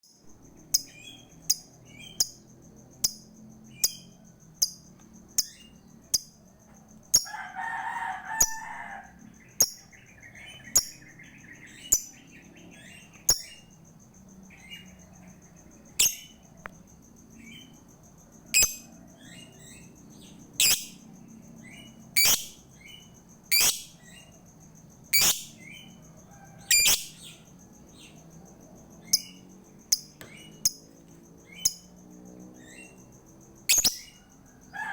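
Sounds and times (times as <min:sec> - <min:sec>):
bird shrill chirps: 0:15.9 - 0:16.4, 0:18.5 - 0:19.9, 0:20.6 - 0:21.0, 0:21.7 - 0:24.3, 0:25.1 - 0:25.9, 0:26.6 - 0:27.4, 0:33.7 - 0:34.3.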